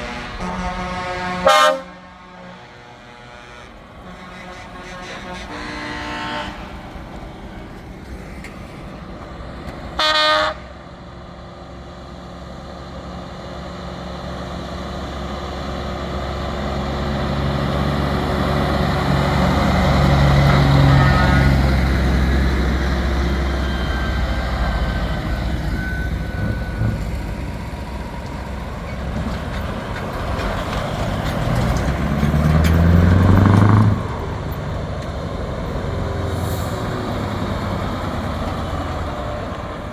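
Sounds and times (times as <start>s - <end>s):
truck horn blast: 0.0s - 7.3s, 10.0s - 10.8s, 17.6s - 27.2s, 31.8s - 34.3s
heavy trucks driving past: 0.0s - 39.9s
engine revving: 15.1s - 39.9s.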